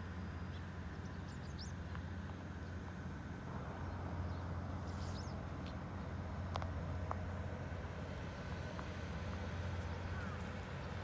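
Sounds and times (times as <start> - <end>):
steady low hum: 0.0 - 11.0
small birds chirping: 0.2 - 2.9, 3.7 - 6.2, 9.7 - 11.0.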